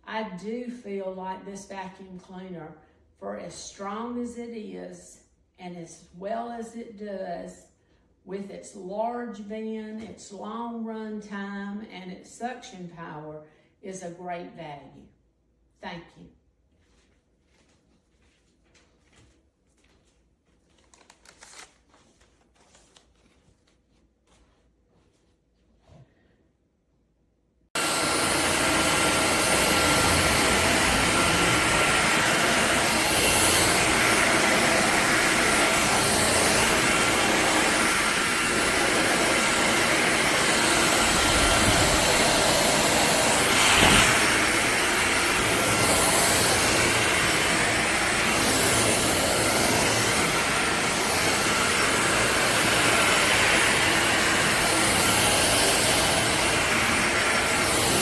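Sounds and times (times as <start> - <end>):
vacuum cleaner running: 27.8 - 58.0.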